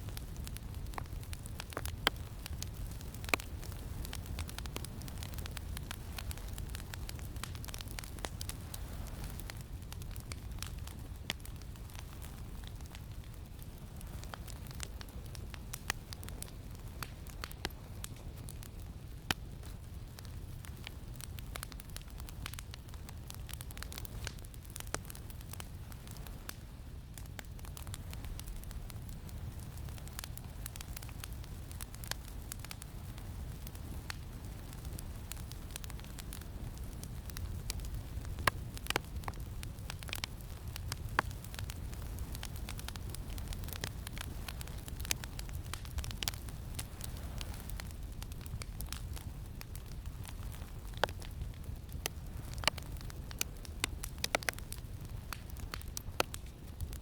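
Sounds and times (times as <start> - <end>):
campfire crackling: 0.0 - 57.0
low rumble of wind: 0.0 - 57.0.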